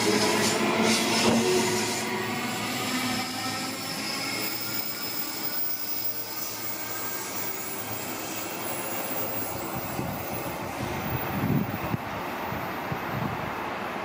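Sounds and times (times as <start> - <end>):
high motor whine: 0.0 - 12.0
train rumbling and hissing: 0.0 - 14.0.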